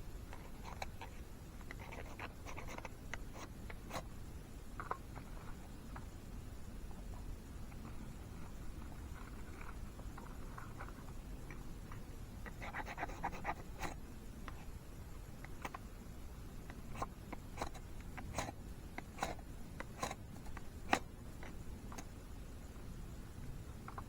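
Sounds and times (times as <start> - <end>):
clicks taps and scratches of handling: 0.3 - 4.1, 6.9 - 15.9, 16.6 - 22.2.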